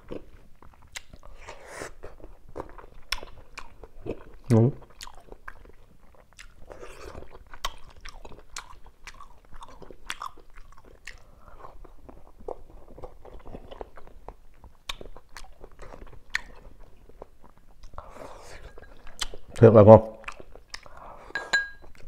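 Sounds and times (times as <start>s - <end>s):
man chewing and eating: 0.0s - 22.0s
mouth clicks and smacks: 10.0s - 11.3s, 14.6s - 16.6s, 18.9s - 21.0s.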